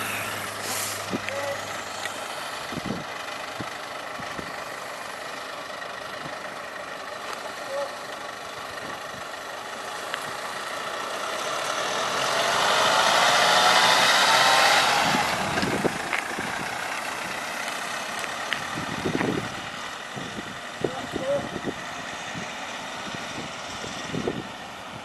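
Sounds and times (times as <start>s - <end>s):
vehicle driving past: 11.0s - 18.0s.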